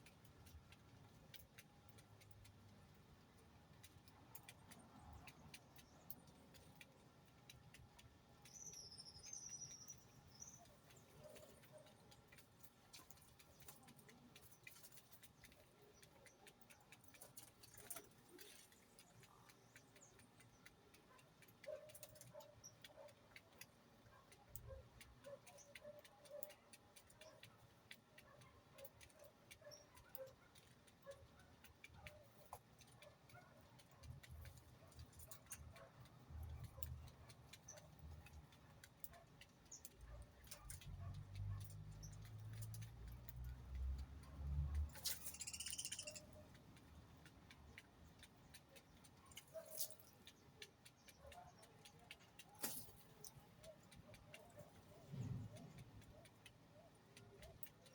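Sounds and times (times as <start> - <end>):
soft bird calls: 4.4 - 43.2, 44.9 - 57.9
high bird chirp: 45.0 - 46.4.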